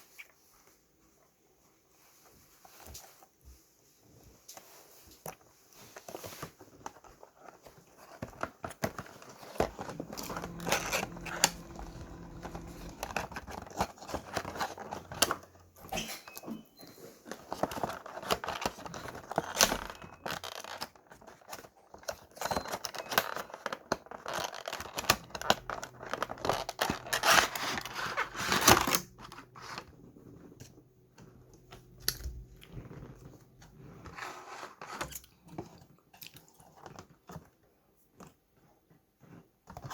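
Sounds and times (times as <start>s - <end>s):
packaging crinkling and tearing: 5.3s - 15.6s, 17.2s - 30.3s.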